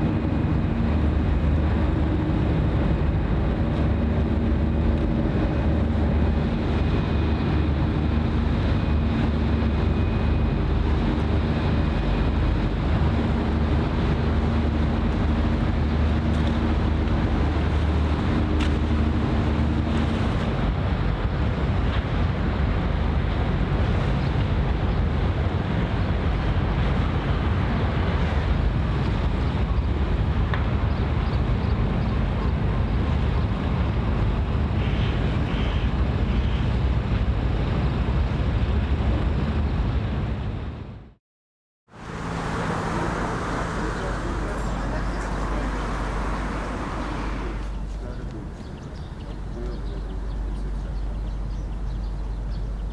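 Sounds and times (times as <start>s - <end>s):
ship engine hum: 0.0s - 31.2s, 41.9s - 52.8s
wind buffeting microphone: 0.0s - 41.1s, 41.9s - 52.9s
wash of water: 41.9s - 47.9s.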